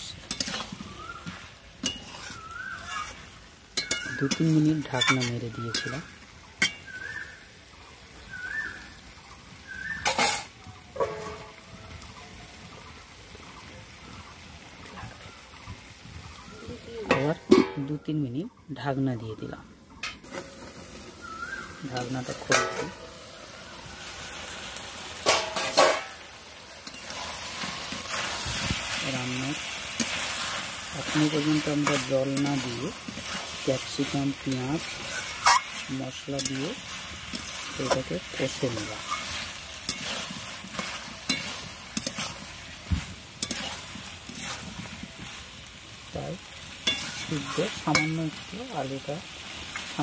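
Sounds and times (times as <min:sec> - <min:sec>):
curry sizzling in a pan: 0:00.0 - 0:50.0
metal clanks against pan: 0:00.2 - 0:00.6, 0:01.8 - 0:03.1, 0:03.8 - 0:06.0, 0:06.6 - 0:06.9, 0:10.0 - 0:11.6, 0:17.1 - 0:18.0, 0:21.9 - 0:23.1, 0:25.2 - 0:26.2, 0:39.8 - 0:42.4, 0:43.4 - 0:43.7, 0:46.8 - 0:48.3.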